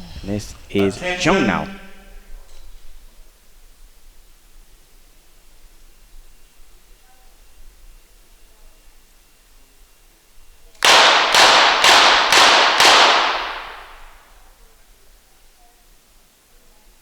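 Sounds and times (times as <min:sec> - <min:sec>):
rapid pistol shots: 0:10.8 - 0:14.2
gunshot echo ringing: 0:10.8 - 0:14.3.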